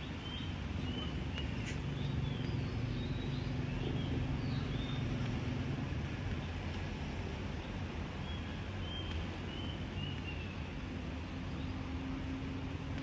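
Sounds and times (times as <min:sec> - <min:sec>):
small birds chirping: 0:00.0 - 0:06.6, 0:07.6 - 0:10.8.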